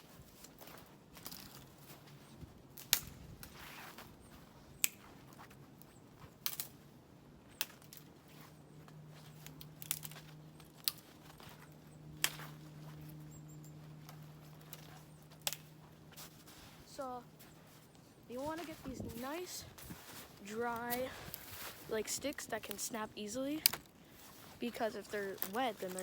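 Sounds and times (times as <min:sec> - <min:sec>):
dry sticks snapping: 0:02.8 - 0:03.6, 0:04.8 - 0:05.5, 0:06.2 - 0:06.8, 0:07.5 - 0:08.1, 0:08.8 - 0:13.0, 0:14.0 - 0:15.9, 0:23.6 - 0:24.3, 0:25.3 - 0:26.0.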